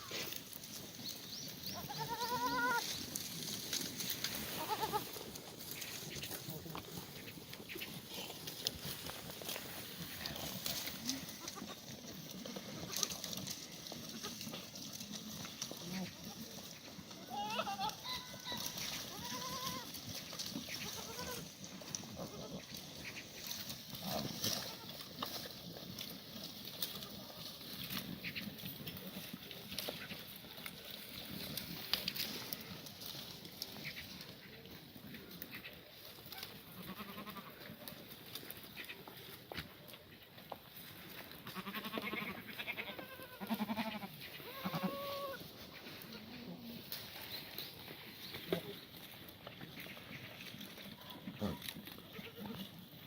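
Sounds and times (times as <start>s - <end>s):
faint background noise: 0.0s - 53.0s
goats bleating: 1.6s - 8.6s, 10.0s - 25.4s, 36.3s - 37.8s, 41.4s - 46.9s, 49.7s - 52.9s.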